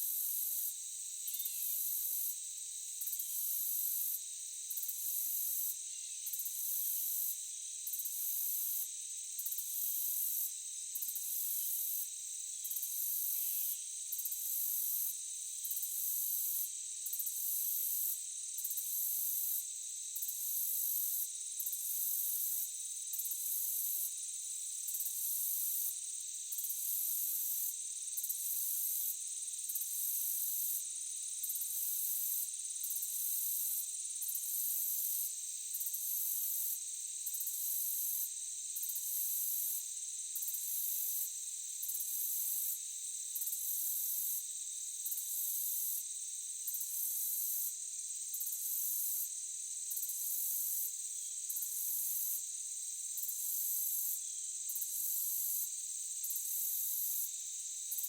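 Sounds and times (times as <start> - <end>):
crickets trilling: 0.2 - 19.0.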